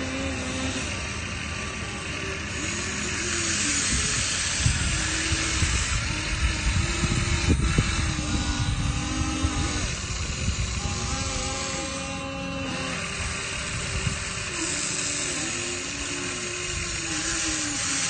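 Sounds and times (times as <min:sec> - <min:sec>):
small electric motors whining: 0:00.0 - 0:18.0
steady hiss: 0:00.0 - 0:18.0.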